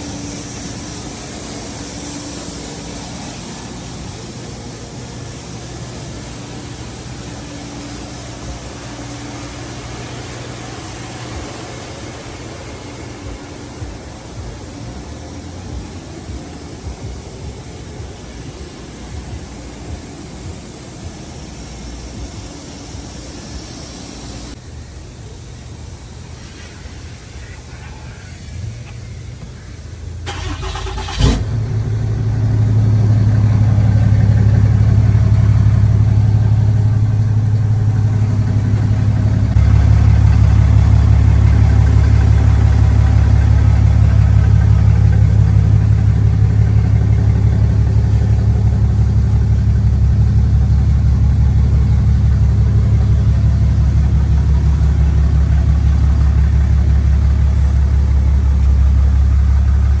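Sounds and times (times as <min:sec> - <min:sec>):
car rumbling on the move: 0:25.2 - 1:00.0.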